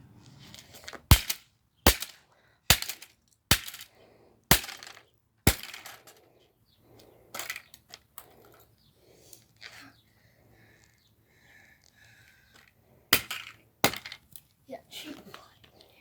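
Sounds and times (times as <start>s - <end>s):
cracking and breaking: 1.0s - 3.9s, 4.5s - 6.1s
hard smashing blows: 1.1s - 3.9s, 4.5s - 6.1s
pieces clattering: 4.5s - 6.2s.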